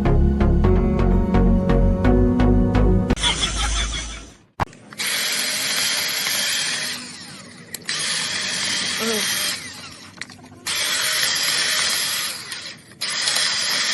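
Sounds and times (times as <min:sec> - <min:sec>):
power tool running: 0:03.5 - 0:13.9.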